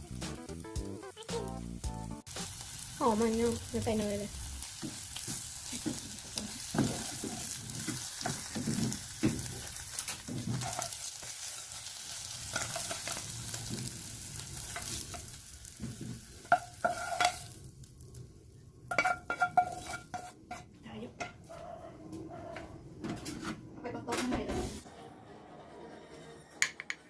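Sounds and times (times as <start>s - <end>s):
omelet sizzling in hot oil: 0.4s - 20.4s
spatula scraping a pan: 4.8s - 13.2s, 16.4s - 17.5s, 18.9s - 20.7s.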